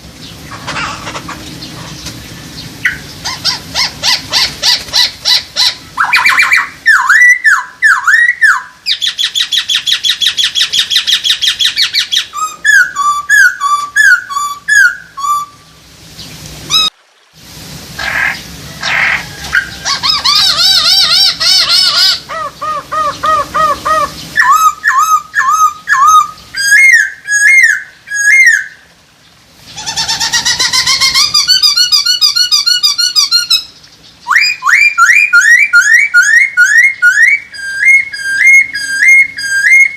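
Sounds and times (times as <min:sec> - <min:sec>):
bird singing whistled song: 0:02.6 - 0:03.5, 0:05.3 - 0:15.8, 0:24.0 - 0:28.8, 0:30.5 - 0:39.9.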